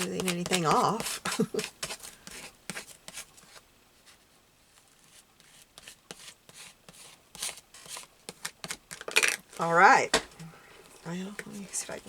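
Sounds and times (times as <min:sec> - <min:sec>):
paper rubbing and rustling: 0:00.0 - 0:09.1.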